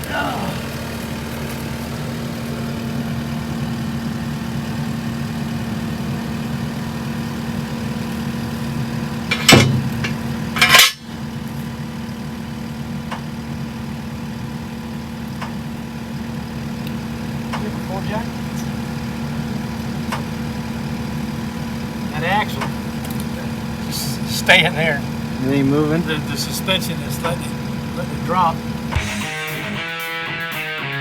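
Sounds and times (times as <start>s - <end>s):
engine idling: 0.0s - 31.0s
loud metallic clanks: 9.2s - 11.2s.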